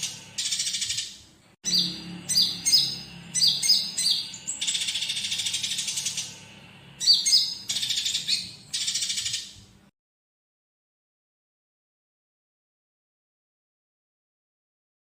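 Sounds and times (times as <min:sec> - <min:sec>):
bird chirps and buzzy trills: 0:00.0 - 0:09.9
faint low hum: 0:00.0 - 0:09.9.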